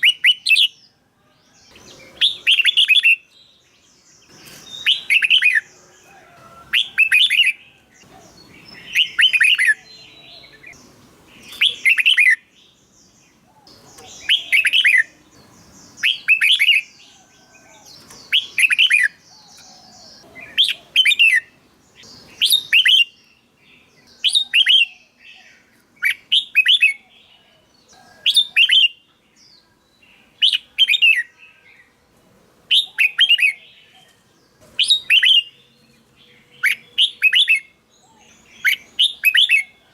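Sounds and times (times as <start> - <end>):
bird singing whistled notes: 0.0 - 0.9, 1.7 - 5.9, 6.5 - 27.6, 28.3 - 31.9, 32.7 - 34.2, 34.8 - 39.9.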